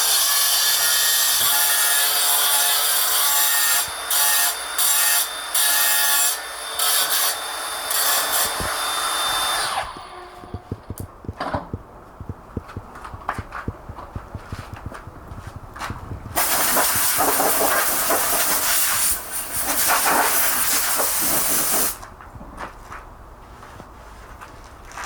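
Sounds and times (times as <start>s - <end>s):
pressurized air hissing: 16.4s - 22.0s.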